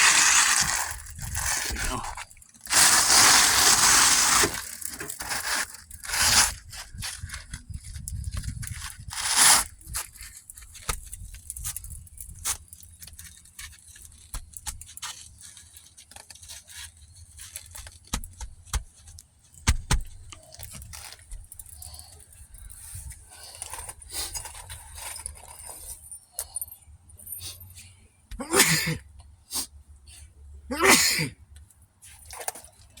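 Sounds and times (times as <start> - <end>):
roof shingles scraping and crackling: 0.0 - 26.1.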